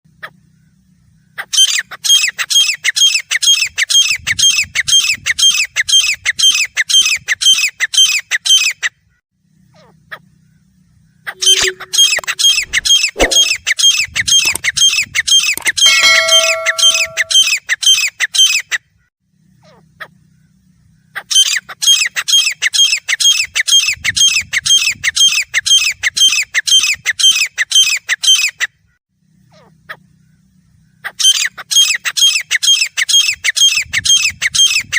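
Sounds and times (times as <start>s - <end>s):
francolin calling harsh notes: 11.4s - 13.5s, 15.8s - 17.5s.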